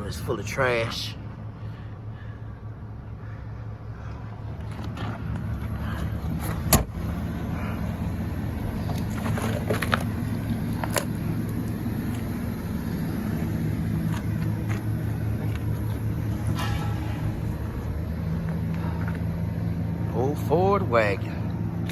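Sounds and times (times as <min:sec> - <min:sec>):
engine idling: 0:00.0 - 0:21.9.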